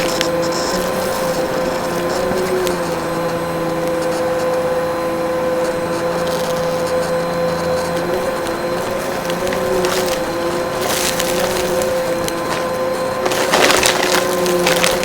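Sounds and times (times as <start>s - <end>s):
vacuum cleaner running: 0.0s - 15.0s
debris clicking: 7.5s - 15.0s.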